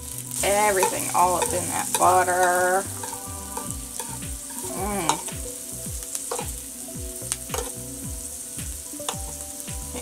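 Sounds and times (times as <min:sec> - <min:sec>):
onions sizzling in butter: 0:00.0 - 0:10.0
utensil scraping a cooking plate: 0:00.4 - 0:05.4.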